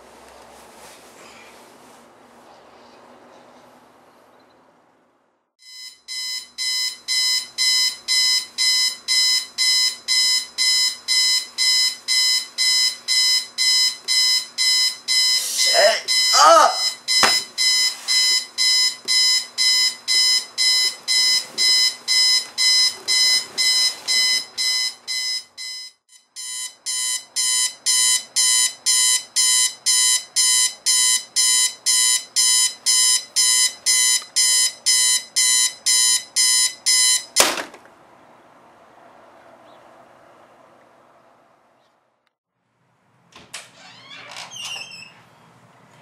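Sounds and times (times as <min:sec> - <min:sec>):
alarm clock beeping: 0:05.6 - 0:37.4
sharp knock: 0:17.2 - 0:17.5.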